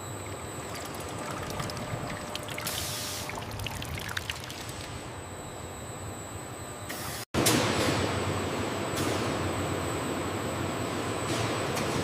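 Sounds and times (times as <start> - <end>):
low machine hum: 0.0 - 12.0
small splashes: 0.2 - 4.9
liquid pouring: 0.2 - 5.0.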